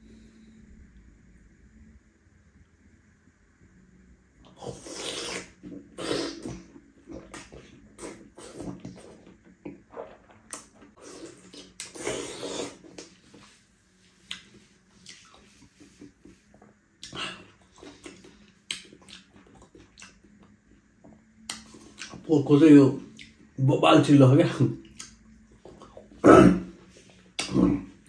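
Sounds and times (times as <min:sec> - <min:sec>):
faint steady hum: 0:00.0 - 0:28.0
person chewing with wet smacks: 0:04.7 - 0:13.5, 0:14.2 - 0:22.3, 0:23.1 - 0:23.4, 0:24.8 - 0:26.2, 0:27.2 - 0:27.8.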